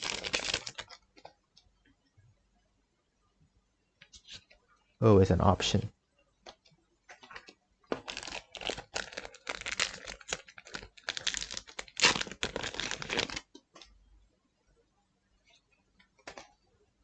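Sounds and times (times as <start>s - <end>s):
foil wrapper tearing and crinkling: 0.0s - 1.0s, 7.9s - 13.5s.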